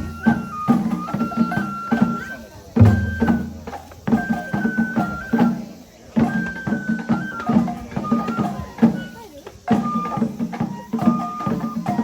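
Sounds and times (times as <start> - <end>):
bamboo flute held notes: 0.0 - 12.0
drum strokes: 0.0 - 12.0.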